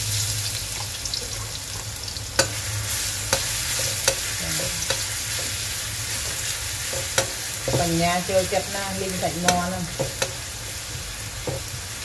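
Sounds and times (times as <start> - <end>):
food sizzling in a wok: 0.0 - 12.0
metal spatula knocking on pan: 9.4 - 10.4, 11.4 - 11.7.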